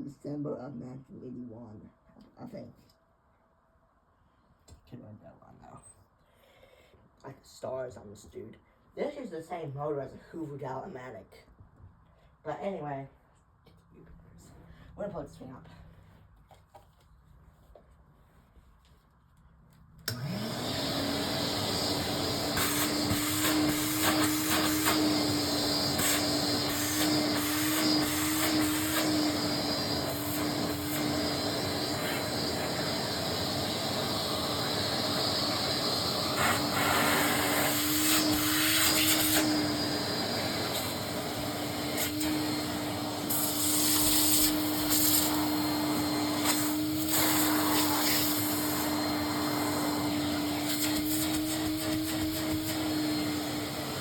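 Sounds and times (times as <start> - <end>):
vacuum cleaner air rush: 20.1 - 54.0
vacuum cleaner motor whine: 20.1 - 54.0.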